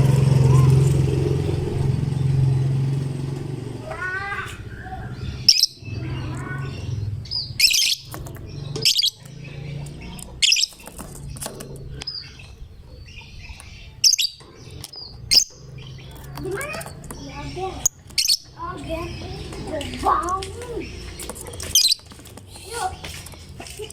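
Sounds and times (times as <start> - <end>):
soft bird chatter: 0.0 - 23.9
lovebird chirping: 4.7 - 23.6.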